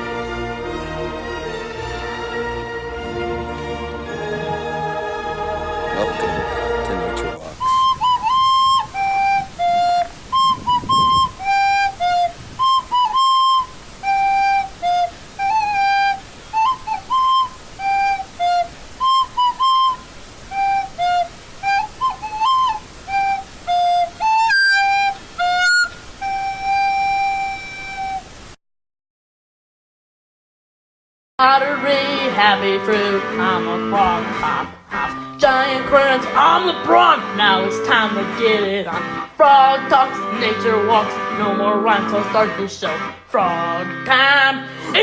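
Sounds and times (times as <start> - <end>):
flute-like instrument playing a tune: 5.8 - 28.6.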